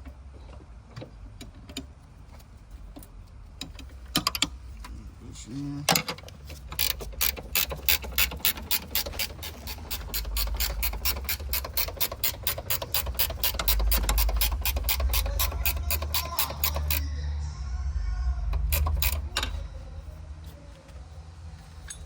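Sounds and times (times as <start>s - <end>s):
ratchet wrench clicking: 6.5s - 17.0s, 18.6s - 19.6s.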